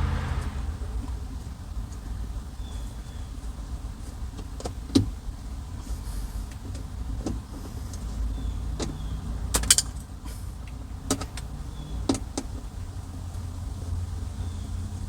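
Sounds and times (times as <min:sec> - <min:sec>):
low rumble: 0:00.0 - 0:01.7.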